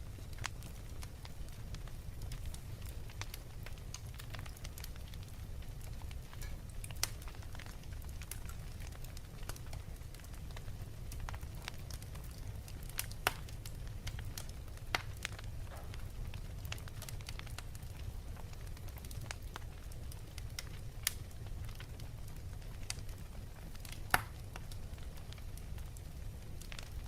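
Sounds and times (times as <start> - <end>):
wood fire crackling: 0.0 - 27.0
sharp pops of fire: 0.3 - 19.8, 23.7 - 25.4.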